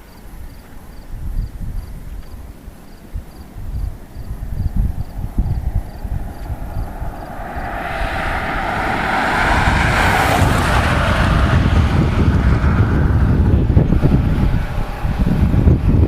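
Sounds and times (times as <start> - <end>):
wind buffeting microphone: 0.3 - 16.0
storm wind gust: 3.2 - 16.0.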